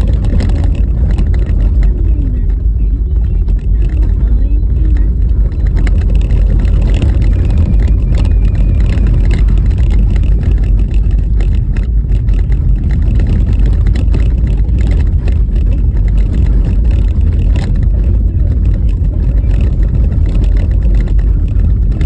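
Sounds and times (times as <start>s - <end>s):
car knocks and rattles: 0.0s - 22.0s
tyre and road rumble: 0.0s - 22.0s.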